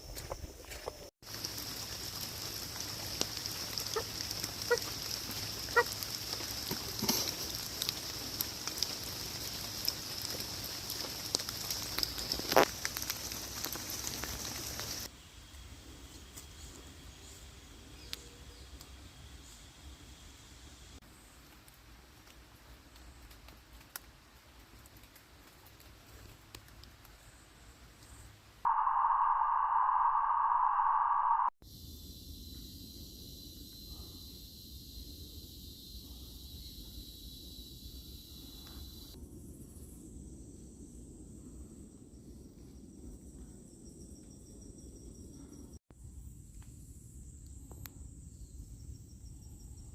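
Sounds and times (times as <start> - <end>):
insects trilling: 0.0 - 21.0, 28.7 - 41.2.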